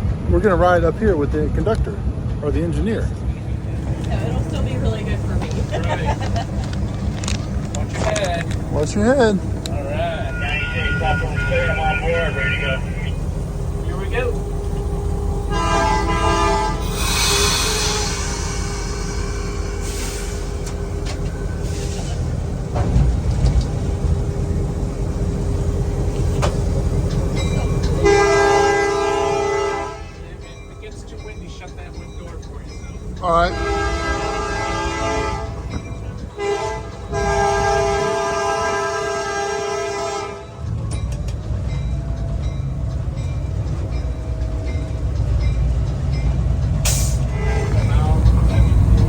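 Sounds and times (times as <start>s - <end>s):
locomotive engine rumbling: 0.0s - 49.0s
locomotive air horn chord: 7.9s - 20.9s, 27.9s - 30.3s, 33.3s - 35.8s, 36.4s - 40.7s, 46.8s - 49.0s.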